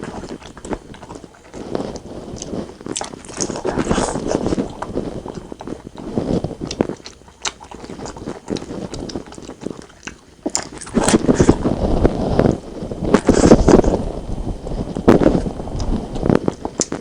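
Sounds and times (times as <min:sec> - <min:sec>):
close chewing and biting: 0:00.0 - 0:17.0.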